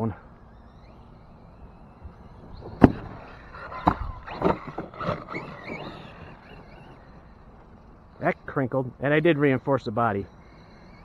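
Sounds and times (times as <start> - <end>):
faint high whine: 0.0 - 11.0
knocks and clatters: 2.0 - 6.8
sharp crack: 2.0 - 7.8.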